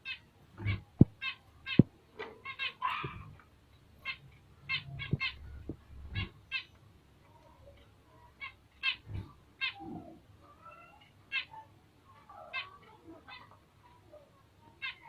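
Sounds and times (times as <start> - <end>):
finches chirping: 0.0 - 6.8.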